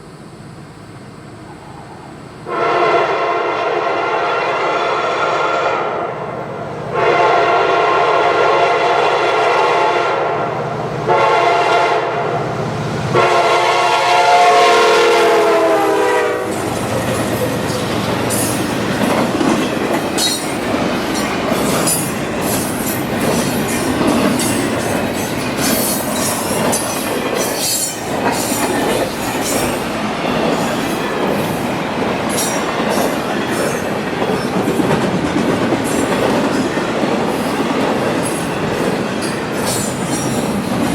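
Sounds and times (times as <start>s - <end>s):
locomotive horn blasts: 2.5s - 6.2s, 6.9s - 12.4s, 13.1s - 16.6s
train wheels rumbling: 10.4s - 40.9s.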